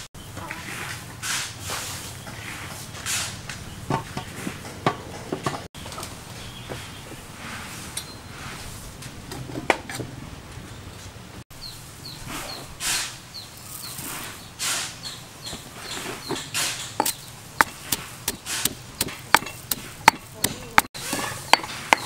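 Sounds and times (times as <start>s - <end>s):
small bird chirping: 11.5s - 22.0s
scraping inside stone mortar: 15.8s - 22.0s.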